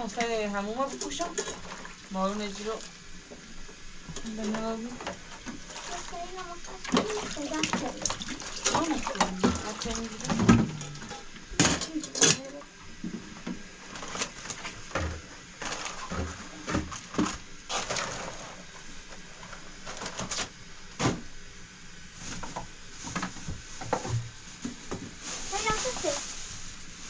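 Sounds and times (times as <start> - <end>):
objects knocking and clattering: 6.8 - 12.4.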